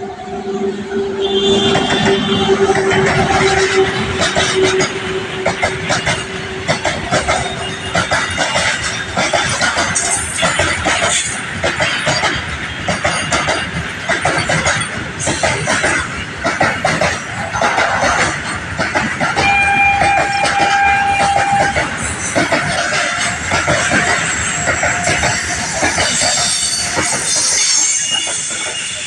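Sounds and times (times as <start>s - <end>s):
steady high tone: 0.0s - 8.1s
freight train wheels clattering: 1.2s - 29.0s.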